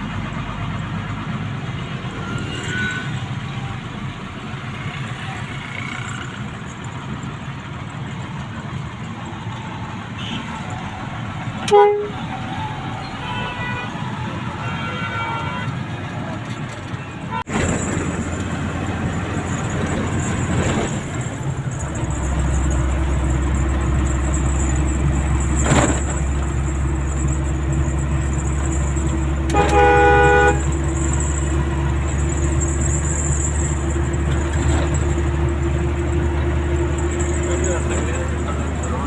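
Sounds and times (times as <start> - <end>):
traffic engine drone: 0.0 - 39.0
vehicle horn blaring: 2.2 - 3.2, 11.6 - 12.4, 13.1 - 15.9, 29.4 - 31.5.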